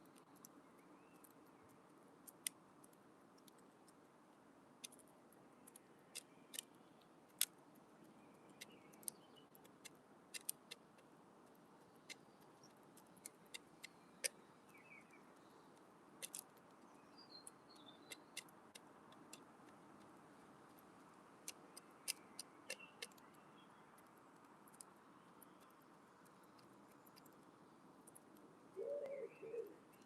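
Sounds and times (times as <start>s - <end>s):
faint bird chirps: 13.8s - 15.8s, 16.8s - 18.5s, 21.7s - 24.0s, 28.7s - 30.0s.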